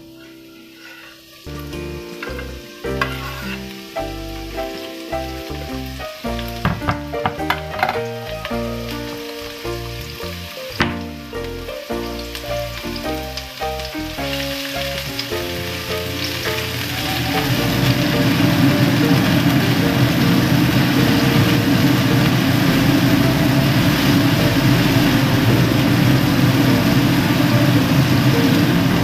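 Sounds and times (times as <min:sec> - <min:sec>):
garlic sizzling in hot oil: 0:00.0 - 0:29.0
wooden spatula scraping a wok: 0:00.2 - 0:01.6, 0:02.2 - 0:03.8
instrumental background music: 0:01.4 - 0:29.0.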